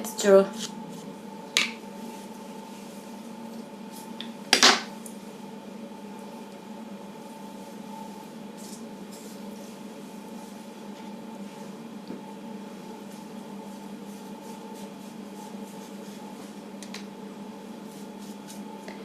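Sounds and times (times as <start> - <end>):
steady background hum: 0.0 - 19.0
brush stroking wet hair: 12.8 - 16.7, 17.8 - 18.8.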